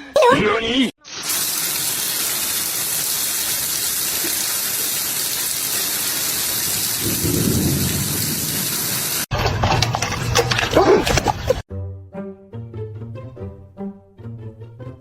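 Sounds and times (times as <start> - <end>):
heavy rain falling: 1.3 - 9.3.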